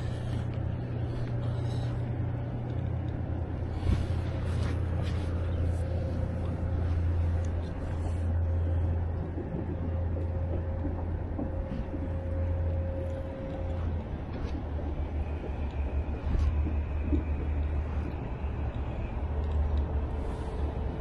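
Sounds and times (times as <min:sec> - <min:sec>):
distant engine drone: 0:00.0 - 0:21.0
faint high whine: 0:00.0 - 0:21.0.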